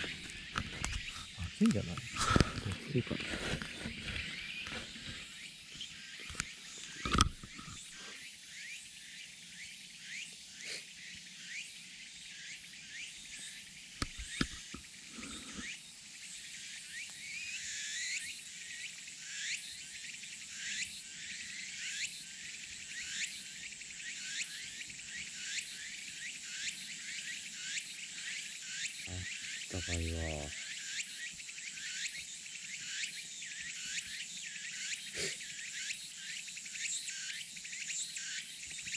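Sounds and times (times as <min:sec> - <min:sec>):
insects droning and chirping: 0:00.0 - 0:38.9.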